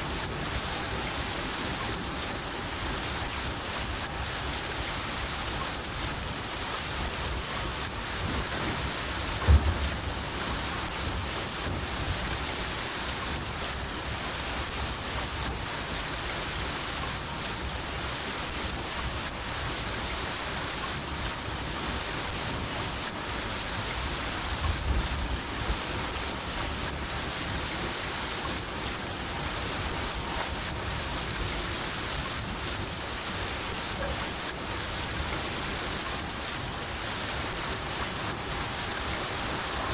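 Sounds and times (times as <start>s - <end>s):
cricket chirping: 0.0s - 12.2s, 12.8s - 16.8s, 18.7s - 39.9s
rain hissing: 0.0s - 39.9s
low thunder rumbling: 7.9s - 12.4s.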